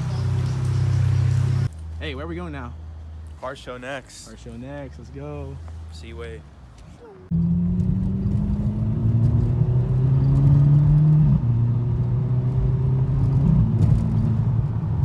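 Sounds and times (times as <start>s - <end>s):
car engine accelerating: 0.0s - 1.7s, 7.2s - 15.0s.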